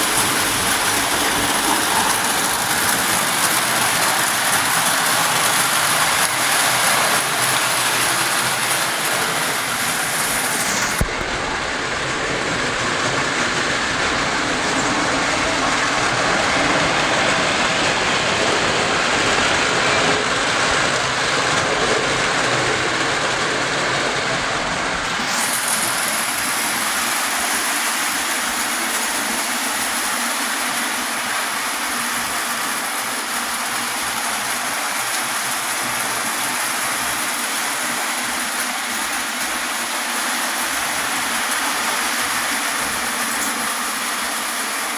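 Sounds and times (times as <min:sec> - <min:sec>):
toy trains clattering on metal track: 0:00.0 - 0:11.0, 0:25.1 - 0:44.9.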